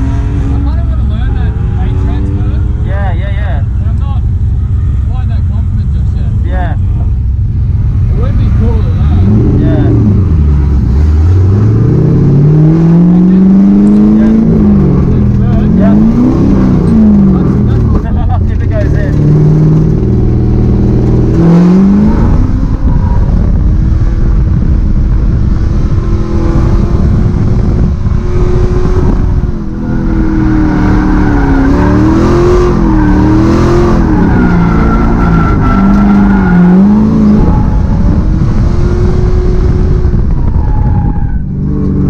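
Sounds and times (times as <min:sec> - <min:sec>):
car engine revving under load: 0:00.0 - 0:42.0.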